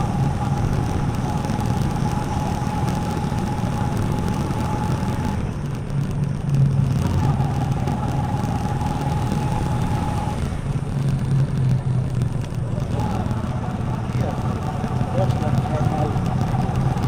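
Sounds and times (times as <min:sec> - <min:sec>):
thin high whine: 0:00.0 - 0:05.6, 0:07.0 - 0:10.8
motorcycle engine running: 0:00.0 - 0:17.0.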